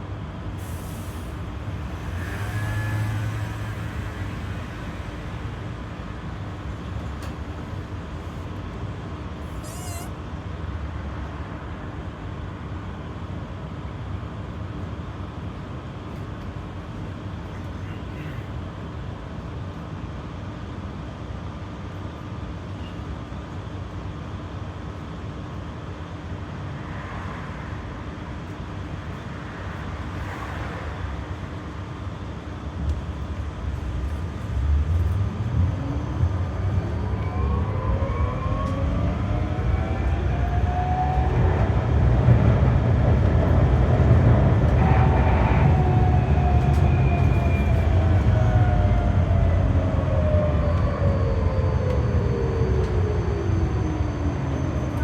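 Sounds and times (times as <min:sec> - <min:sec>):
tram wheels rumbling on rail: 0:00.0 - 0:55.0.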